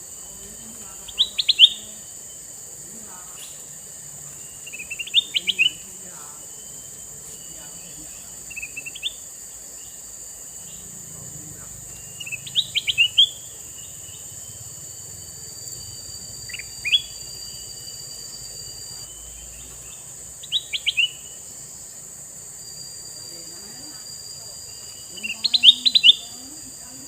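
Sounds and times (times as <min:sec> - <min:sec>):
high insect-like whine: 0:00.0 - 0:27.0
bulbul chirping: 0:01.0 - 0:02.1, 0:04.4 - 0:09.3, 0:10.6 - 0:14.9, 0:15.7 - 0:21.5, 0:24.8 - 0:26.4.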